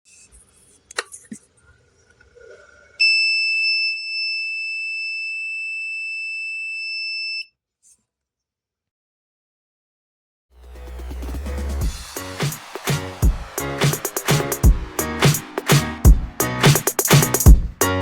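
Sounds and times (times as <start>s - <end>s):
high-pitched electronic alarm buzzer: 3.0s - 7.5s.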